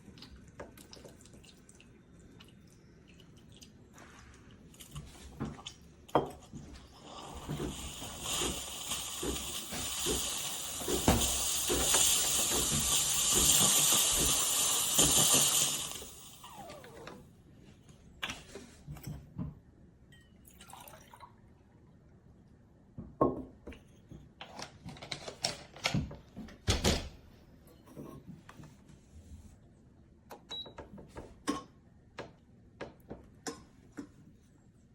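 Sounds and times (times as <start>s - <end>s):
running water: 7.0s - 16.9s.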